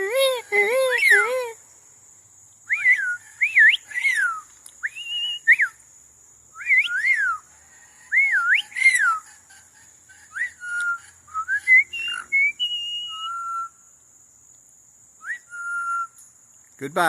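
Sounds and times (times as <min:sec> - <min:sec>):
parrot whistling: 0:10.3 - 0:13.7.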